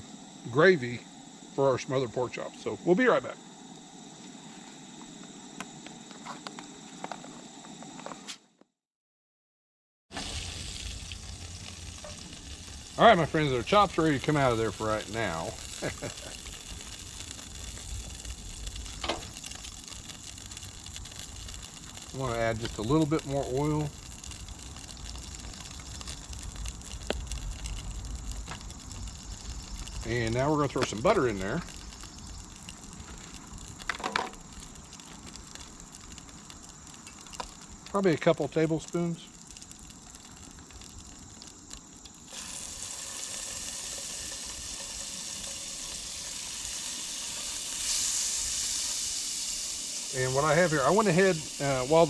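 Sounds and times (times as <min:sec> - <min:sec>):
camp stove burner roaring: 0:00.0 - 0:08.2, 0:10.1 - 0:52.0
oil sizzling: 0:10.1 - 0:52.0.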